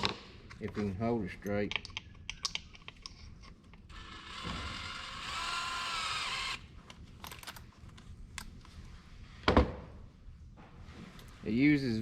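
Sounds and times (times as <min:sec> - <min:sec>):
power drill motor whining: 0:03.9 - 0:06.7.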